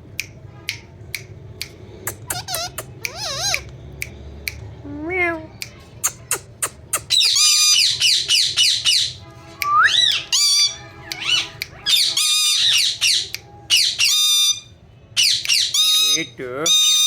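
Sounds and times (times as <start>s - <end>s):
parakeet squawking: 2.0s - 3.8s, 6.1s - 17.0s.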